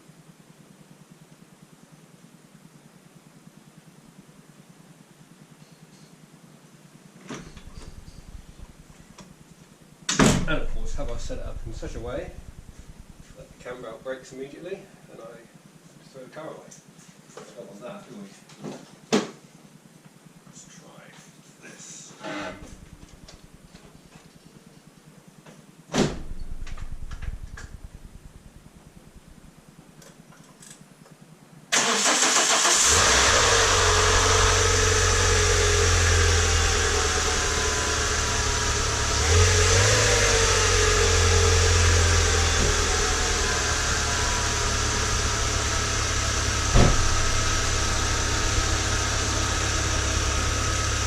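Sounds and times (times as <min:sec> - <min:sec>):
car engine cranking and idling: 0:07.5 - 0:09.0, 0:10.4 - 0:13.8, 0:22.5 - 0:23.8, 0:26.2 - 0:29.5, 0:31.8 - 0:51.0.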